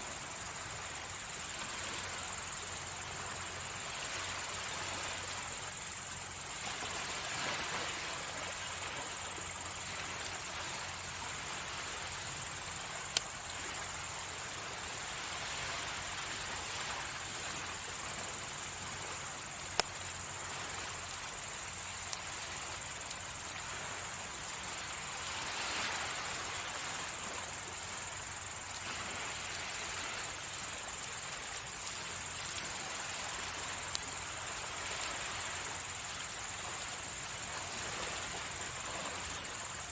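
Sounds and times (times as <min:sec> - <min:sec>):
crickets chirring: 0:00.0 - 0:39.9
waves washing in: 0:00.0 - 0:39.9
campfire popping: 0:12.0 - 0:14.0, 0:18.4 - 0:25.5, 0:27.1 - 0:37.0.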